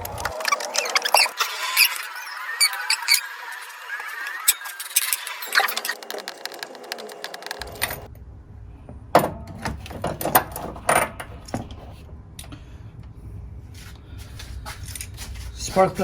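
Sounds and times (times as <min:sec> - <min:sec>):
low steady hum: 0:07.7 - 0:16.0.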